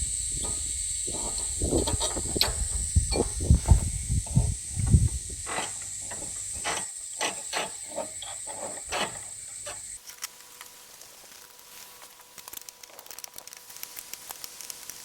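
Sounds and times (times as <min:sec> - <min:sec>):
steady high hiss: 0:00.0 - 0:15.0
hand tools clicking and knocking: 0:00.4 - 0:03.8, 0:04.4 - 0:10.0.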